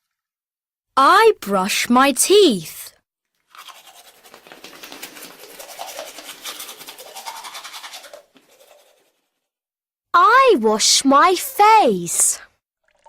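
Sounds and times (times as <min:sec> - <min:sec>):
toothbrush scrubbing teeth: 0:03.4 - 0:09.5.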